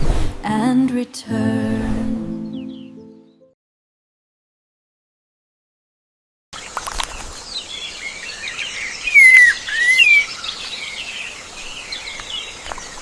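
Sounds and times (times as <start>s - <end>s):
birds chirping and whistling: 2.2s - 3.4s, 7.0s - 13.0s.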